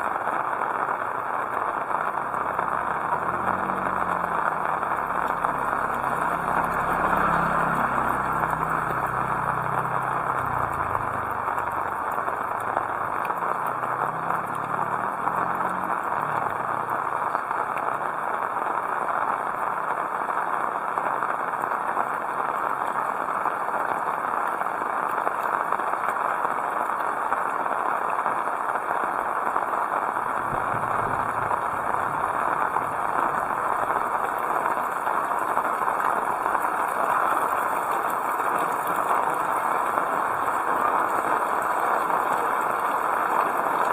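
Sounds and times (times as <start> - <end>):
heavy rain falling: 0.0 - 43.9
low engine hum: 1.8 - 18.0, 30.1 - 35.0.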